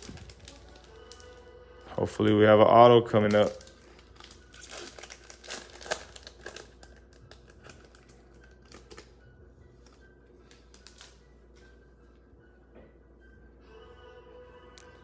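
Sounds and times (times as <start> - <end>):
card pack wrapper crinkling: 0.0 - 1.4, 3.0 - 9.2, 9.9 - 11.2.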